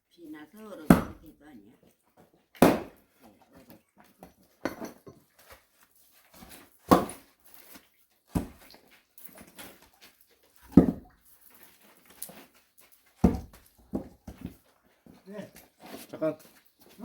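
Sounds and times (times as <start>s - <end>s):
axe chopping firewood: 0.9s - 1.3s, 2.6s - 3.1s, 6.8s - 7.3s, 8.3s - 8.6s, 10.7s - 11.1s, 13.2s - 14.4s.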